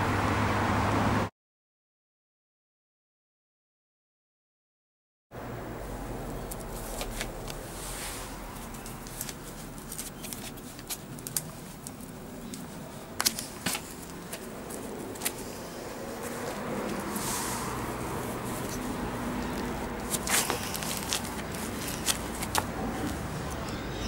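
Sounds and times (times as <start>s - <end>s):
outdoor background hiss: 5.4s - 24.0s
shoe clicks and scuffs: 6.4s - 23.7s.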